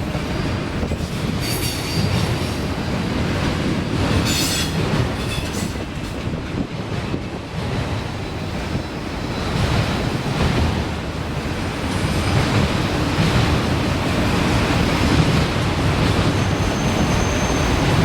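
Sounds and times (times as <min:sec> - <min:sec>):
freight train cars rumbling: 0:00.0 - 0:18.0
wind on microphone: 0:00.0 - 0:18.0
faint high squeal: 0:16.4 - 0:18.0.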